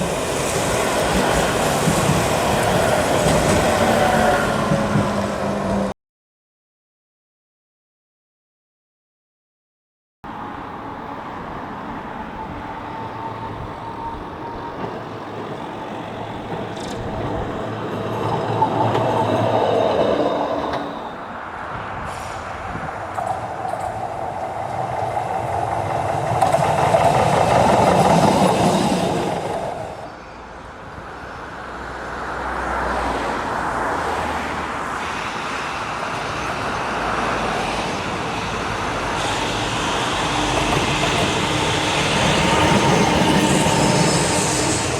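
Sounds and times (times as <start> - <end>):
tram wheels rumbling on rails: 0.0 - 5.9, 11.8 - 44.9
tram motor noise: 12.4 - 21.6, 23.0 - 30.7, 34.8 - 44.9.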